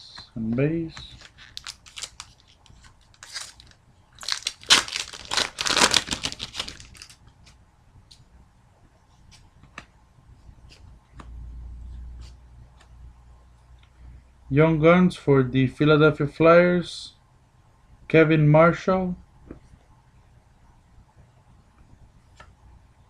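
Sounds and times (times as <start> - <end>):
wrapper tearing and crinkling: 1.1 - 7.2.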